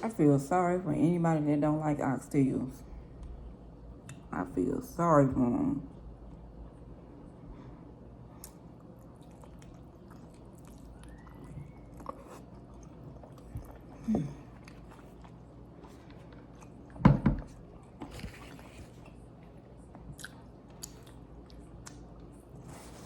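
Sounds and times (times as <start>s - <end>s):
person chewing and lip-smacking: 8.4s - 15.4s, 19.9s - 22.5s.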